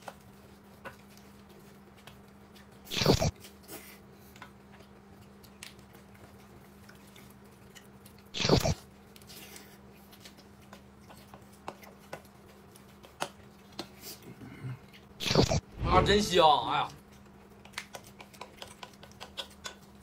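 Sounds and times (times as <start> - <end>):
steady low hum: 14.3 - 17.5.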